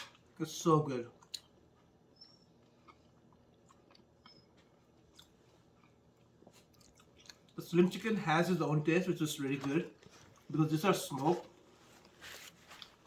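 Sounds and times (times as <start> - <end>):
person chewing wet clicks: 1.2 - 2.0, 2.6 - 7.6.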